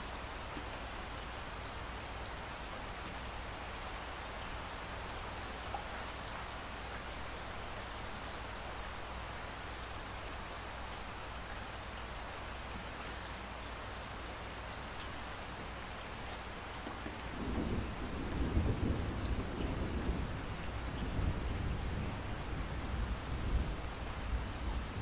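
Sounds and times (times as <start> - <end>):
steady rain falling: 0.0 - 25.0
low rumble of thunder: 17.2 - 25.0.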